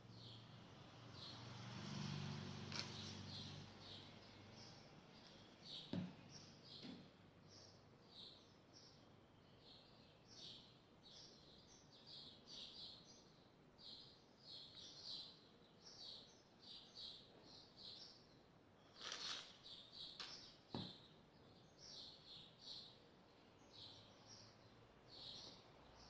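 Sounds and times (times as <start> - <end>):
faint bird chirping: 0.0 - 26.0
light knock: 5.9 - 6.2
brief rustle: 19.0 - 19.6.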